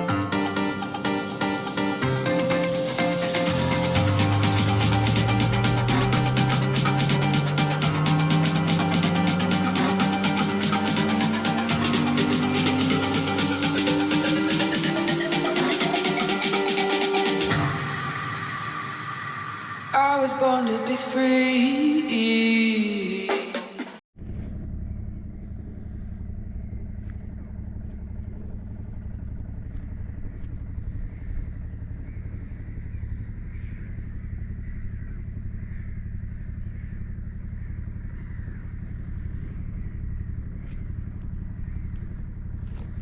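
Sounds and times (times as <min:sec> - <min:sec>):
intro song: 0:00.0 - 0:21.4
boat engine idling: 0:00.3 - 0:17.5.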